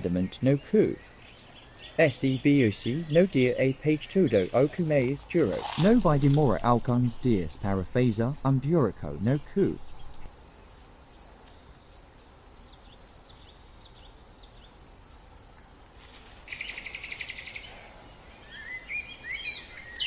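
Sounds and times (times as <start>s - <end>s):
bird chirps: 0.0s - 10.3s, 16.5s - 20.0s
high insect trill: 0.0s - 18.8s
rapid pulsing insect buzz: 2.8s - 11.0s
bird twittering: 16.5s - 17.8s.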